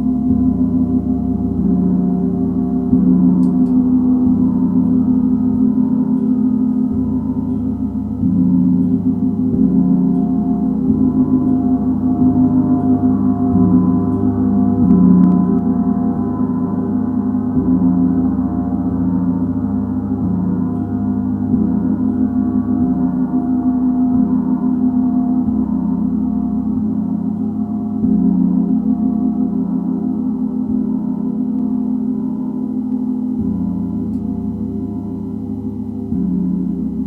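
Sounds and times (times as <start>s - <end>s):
gong ringing: 0.0s - 37.0s.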